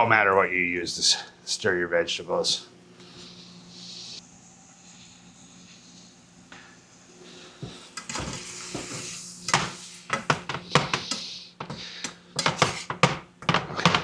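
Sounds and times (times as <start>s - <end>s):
vegetables frying hiss: 7.3s - 12.0s
spatula clacking and scraping pan: 8.0s - 14.0s.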